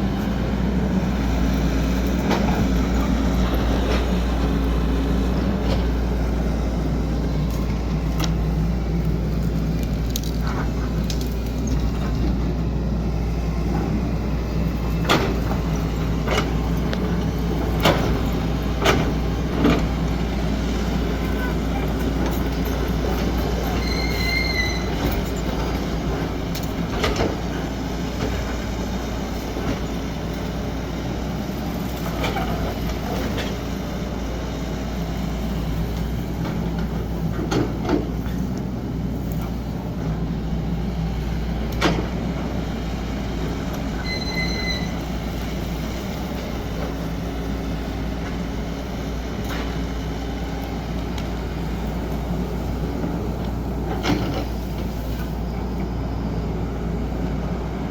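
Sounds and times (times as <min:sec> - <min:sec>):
excavator diesel engine running: 0:00.0 - 0:57.9
high squeals: 0:23.7 - 0:25.3, 0:44.0 - 0:45.1.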